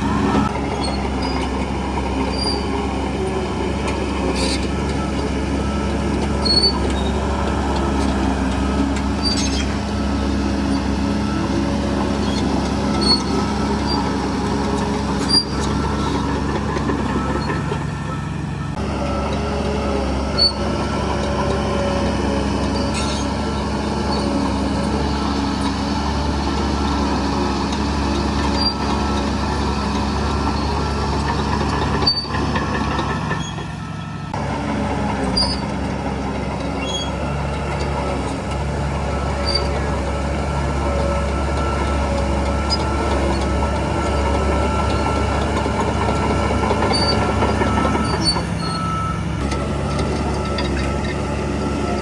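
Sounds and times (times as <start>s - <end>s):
heavy diesel machinery running: 0.0s - 52.0s
faint high squeaks: 6.4s - 7.4s, 8.9s - 10.0s, 12.2s - 14.2s, 20.3s - 20.7s, 22.8s - 23.4s, 33.3s - 34.1s, 36.8s - 37.4s, 46.0s - 49.2s.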